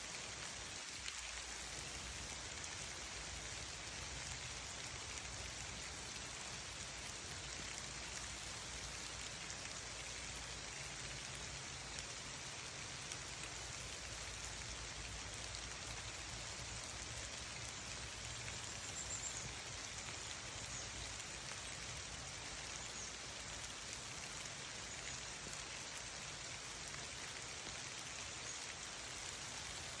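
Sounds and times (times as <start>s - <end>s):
rain pattering: 0.0s - 30.0s.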